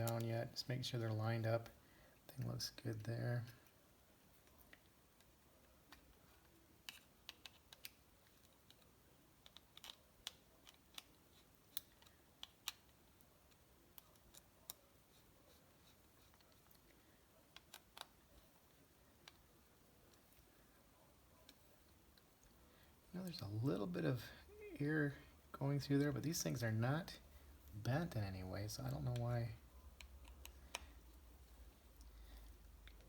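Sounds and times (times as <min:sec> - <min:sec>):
small screws and tool clicking: 0:05.9 - 0:15.2, 0:17.5 - 0:19.4, 0:29.9 - 0:31.2.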